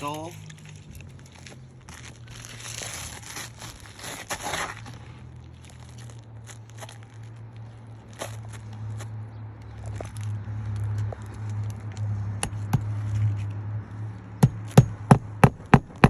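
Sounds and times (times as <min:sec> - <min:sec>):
roof shingles scraping rustle: 0:00.0 - 0:07.2.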